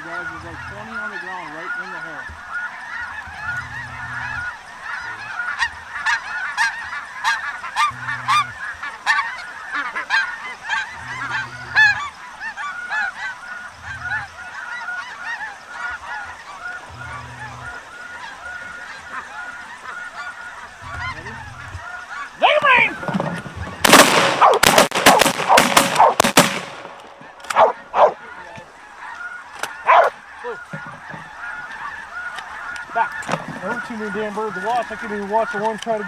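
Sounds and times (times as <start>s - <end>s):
geese honking: 0.0s - 36.0s.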